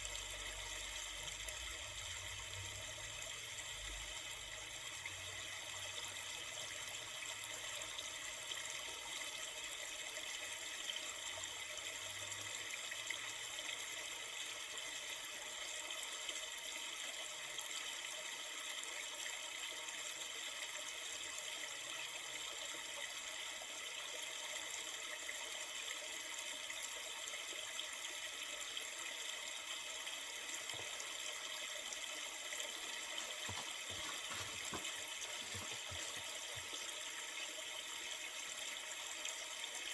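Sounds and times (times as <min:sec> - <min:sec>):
river flowing: 0:30.3 - 0:38.5.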